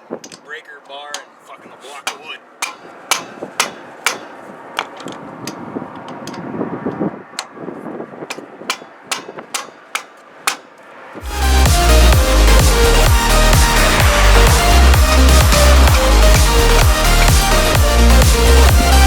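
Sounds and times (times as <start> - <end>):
tools knocking and clanking: 0.0 - 0.5, 1.1 - 7.6, 8.2 - 10.8
electronic dance music: 11.2 - 19.0.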